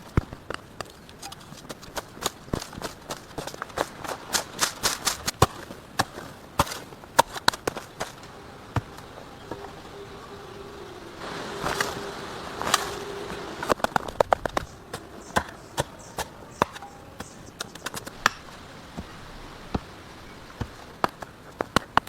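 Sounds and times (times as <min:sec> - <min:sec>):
sharp knocks and cracks: 0:00.0 - 0:08.2
noise: 0:00.0 - 0:22.0.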